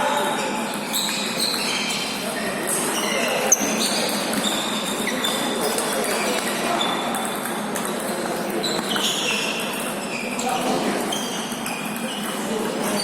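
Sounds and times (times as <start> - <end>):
ping-pong ball clicks: 2.6 - 4.6, 5.6 - 10.0, 11.2 - 13.0.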